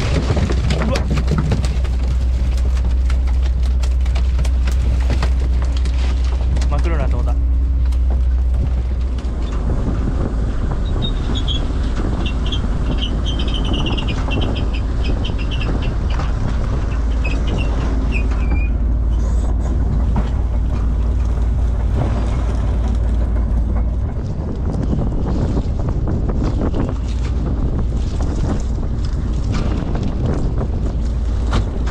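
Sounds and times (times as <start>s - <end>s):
boat engine droning: 0.0s - 31.9s
short high squeaks: 10.8s - 16.0s, 16.8s - 19.7s.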